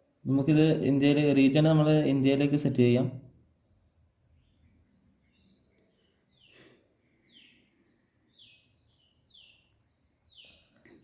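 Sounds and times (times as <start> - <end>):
faint bird chirps: 3.6 - 11.0.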